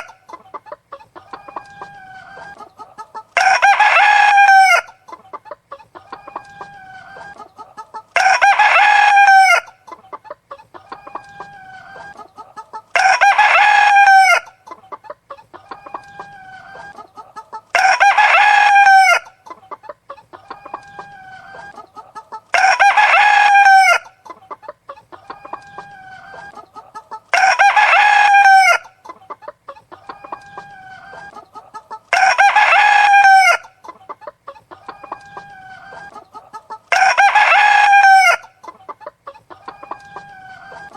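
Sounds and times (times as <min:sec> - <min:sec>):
chickens clucking: 0:00.0 - 0:40.9
rooster crowing: 0:03.4 - 0:05.0, 0:08.2 - 0:09.8, 0:12.9 - 0:14.6, 0:17.7 - 0:19.3, 0:22.5 - 0:24.1, 0:27.3 - 0:28.9, 0:32.1 - 0:33.7, 0:36.9 - 0:38.5.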